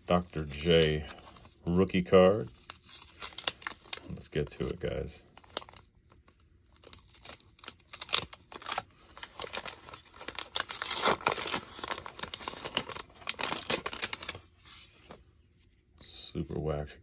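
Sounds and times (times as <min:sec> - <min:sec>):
wax paper wrapper tearing and crinkling: 0:00.0 - 0:14.8.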